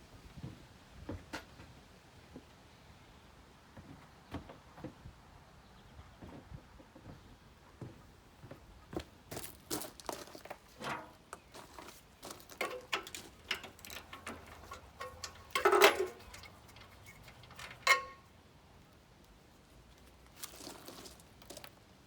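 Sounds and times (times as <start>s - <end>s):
hand tools clinking: 10.8s - 18.3s
metal clank ringing: 12.6s - 18.3s.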